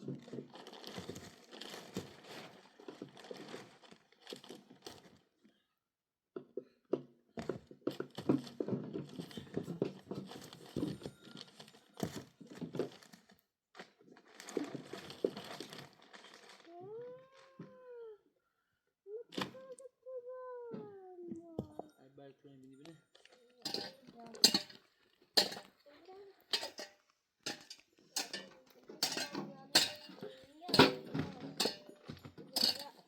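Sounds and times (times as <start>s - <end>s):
crinkling crunching handling noises: 0.0s - 5.4s, 7.9s - 17.8s, 23.1s - 33.0s.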